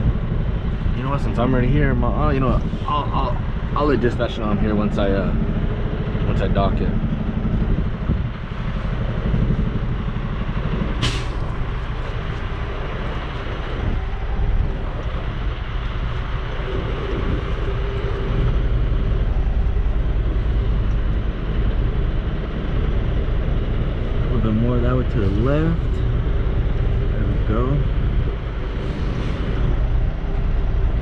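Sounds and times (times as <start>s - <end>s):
diesel truck engine running: 0.0s - 31.0s.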